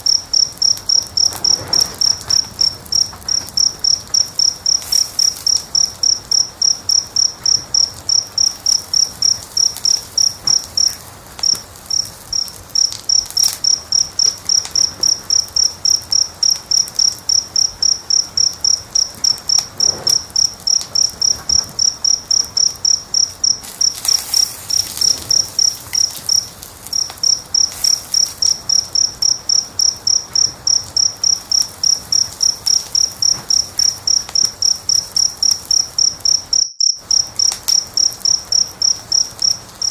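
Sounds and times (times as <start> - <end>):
cricket chirping: 0.0 - 39.9
wood fire crackling: 0.0 - 39.9.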